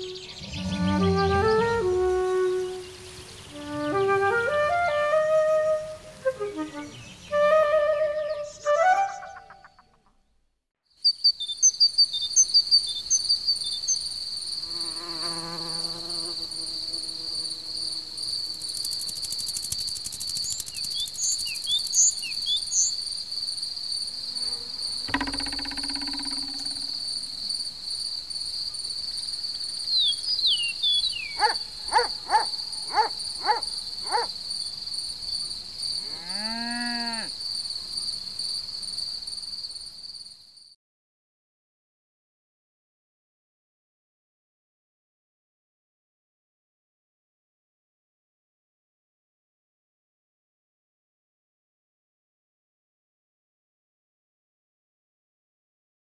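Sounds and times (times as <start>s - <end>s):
crickets trilling: 11.0s - 40.5s
short animal calls: 31.4s - 34.3s.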